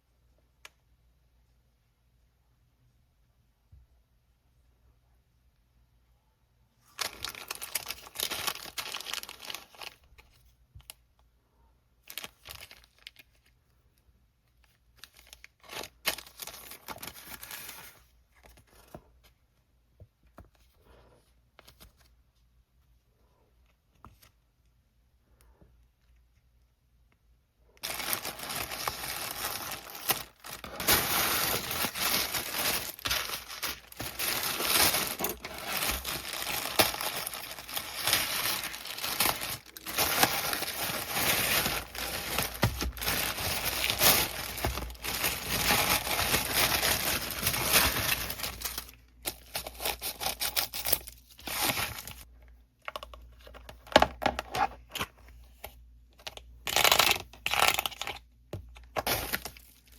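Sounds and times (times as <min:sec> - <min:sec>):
plastic packaging crinkling: 0:06.9 - 0:10.3, 0:12.1 - 0:13.6, 0:14.6 - 0:18.9, 0:27.8 - 0:52.3.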